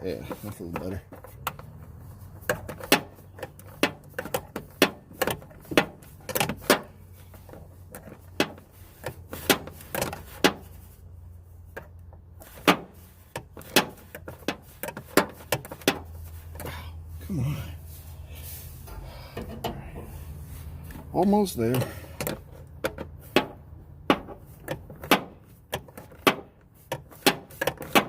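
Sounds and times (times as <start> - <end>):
low steady hum: 15.6 - 24.9.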